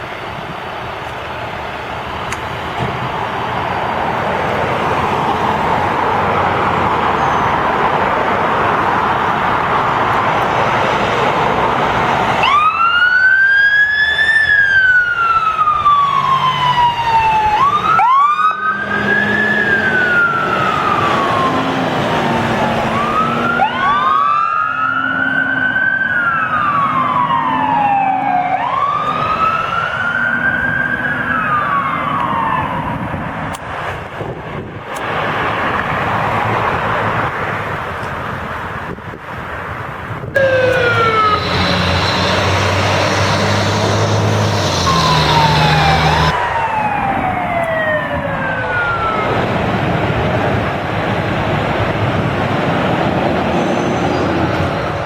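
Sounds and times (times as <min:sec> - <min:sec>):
heavy vehicle rushing: 0:00.0 - 0:55.0
siren wailing: 0:12.0 - 0:33.4, 0:40.4 - 0:51.0.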